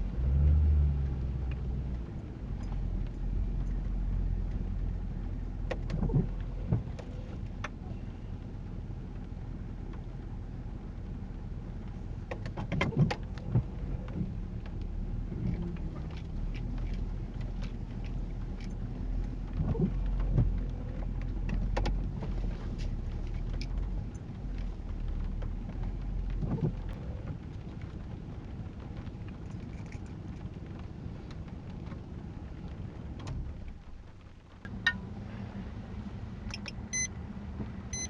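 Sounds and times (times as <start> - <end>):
car engine and road rumble: 0.0 - 38.0.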